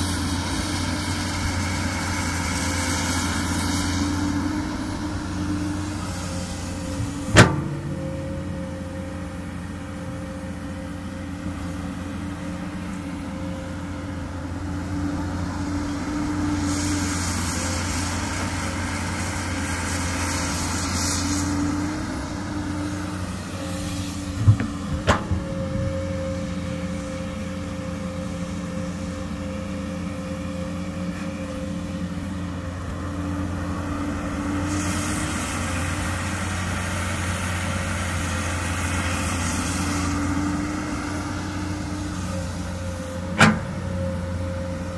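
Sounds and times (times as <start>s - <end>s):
excavator diesel engine running: 0.0s - 44.9s
sharp knocks: 24.4s - 26.0s.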